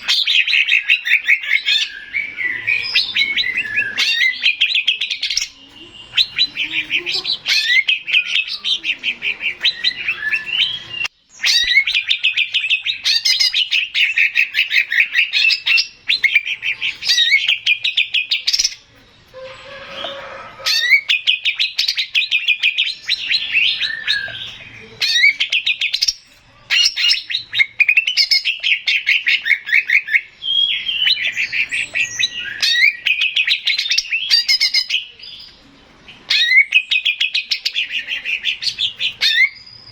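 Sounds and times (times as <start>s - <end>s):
bird singing fast trills: 0.0s - 19.0s, 20.7s - 35.5s, 36.1s - 39.9s.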